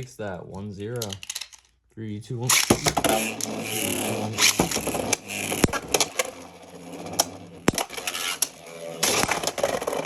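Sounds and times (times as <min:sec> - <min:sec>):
sharp plastic clacks: 0:00.9 - 0:01.8, 0:02.5 - 0:03.6
spinning tops whirring: 0:02.5 - 0:10.0.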